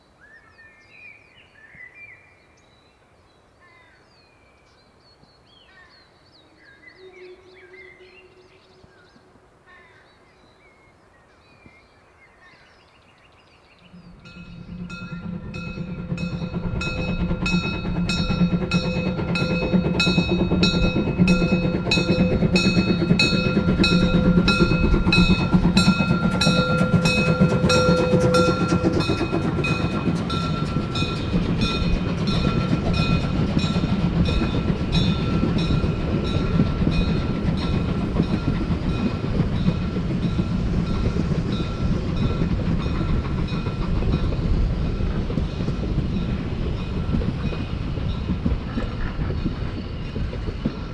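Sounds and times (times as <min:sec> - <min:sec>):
rail running noise: 0:13.8 - 0:50.9
steam locomotive exhaust beats: 0:13.9 - 0:50.9.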